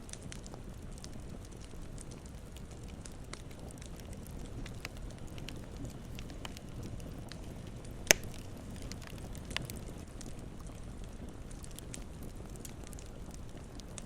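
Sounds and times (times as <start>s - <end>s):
campfire crackling: 0.0s - 14.0s
loud pop from fire: 8.0s - 8.9s.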